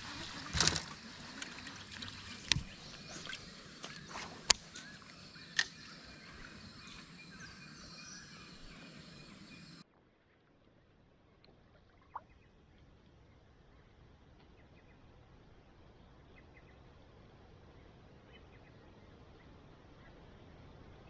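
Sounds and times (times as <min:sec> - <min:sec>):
birds chirping: 0:00.0 - 0:09.8
creek background noise: 0:00.0 - 0:09.8.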